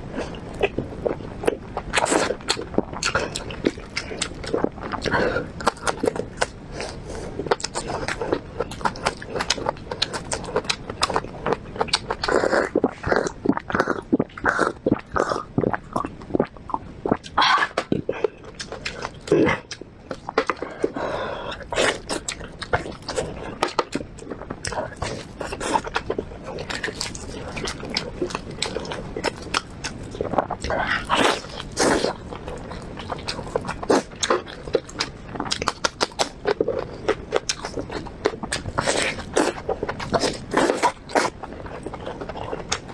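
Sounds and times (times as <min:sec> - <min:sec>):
wet chewing mouth clicks: 0:00.3 - 0:42.9.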